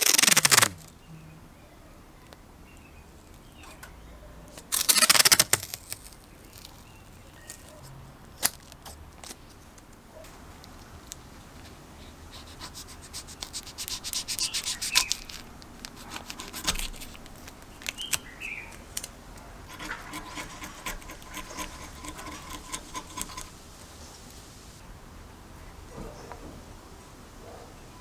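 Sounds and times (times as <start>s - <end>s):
hand scraping on metal: 0.0s - 0.8s, 4.7s - 5.8s, 12.3s - 24.8s.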